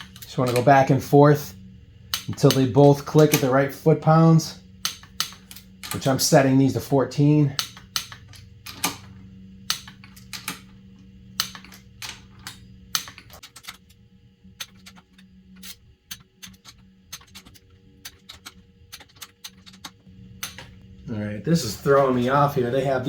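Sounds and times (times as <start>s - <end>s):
steady low hum: 0.0s - 23.0s
torque wrench clicking: 2.1s - 3.5s, 4.8s - 6.2s, 7.6s - 9.1s.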